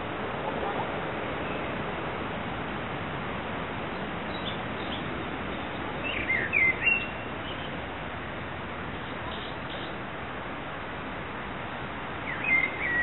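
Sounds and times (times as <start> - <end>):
outdoor background noise: 0.0 - 13.0
bird chirps: 12.3 - 13.0.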